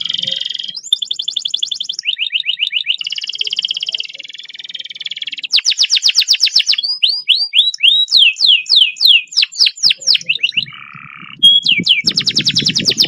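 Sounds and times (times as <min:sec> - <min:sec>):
canary singing: 0:00.0 - 0:13.0.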